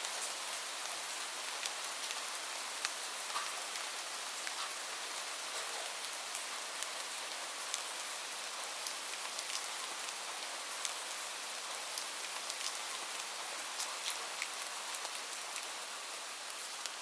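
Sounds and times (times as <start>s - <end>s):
raindrops ticking on a surface: 0.0s - 17.0s
steady rain hiss: 0.0s - 17.0s.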